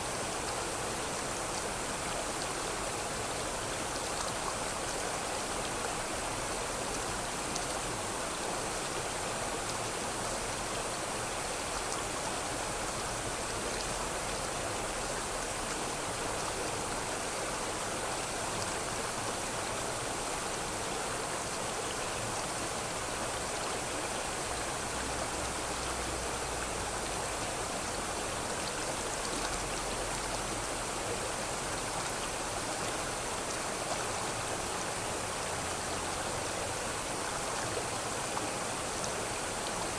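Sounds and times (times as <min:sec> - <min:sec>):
river water flowing over stones: 0:00.0 - 0:39.9.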